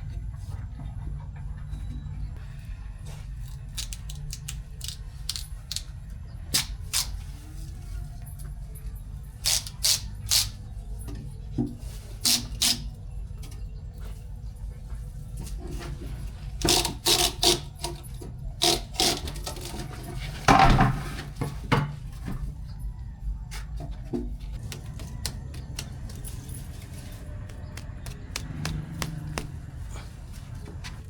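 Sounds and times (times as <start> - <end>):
hard objects knocking and clicking: 27.4 - 29.8.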